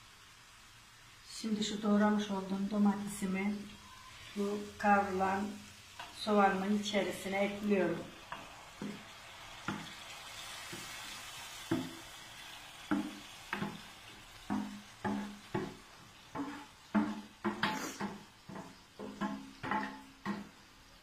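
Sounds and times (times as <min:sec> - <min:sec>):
onions sizzling: 0:00.0 - 0:21.0
wooden spoon scraping a tray: 0:14.5 - 0:20.4.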